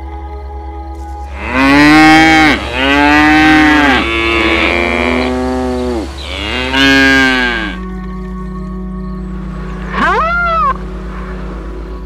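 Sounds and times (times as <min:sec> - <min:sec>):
cow mooing: 0:01.3 - 0:07.8.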